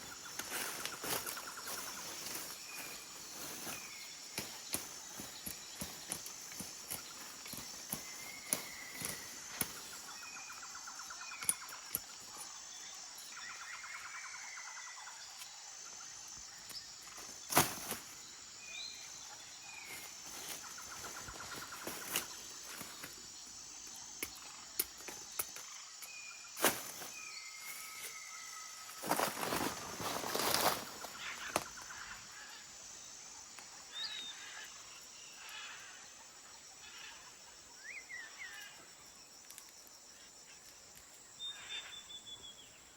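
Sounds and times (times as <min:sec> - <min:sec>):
rustling crunches: 0:00.0 - 0:10.1, 0:17.0 - 0:18.2, 0:19.8 - 0:23.2, 0:28.8 - 0:31.8
birds chirping and trilling: 0:00.0 - 0:39.2, 0:40.1 - 0:42.9
high insect drone: 0:00.0 - 0:42.9.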